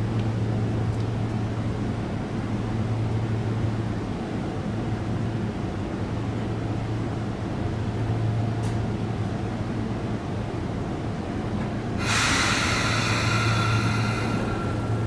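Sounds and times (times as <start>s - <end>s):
electric train humming: 11.5s - 15.0s.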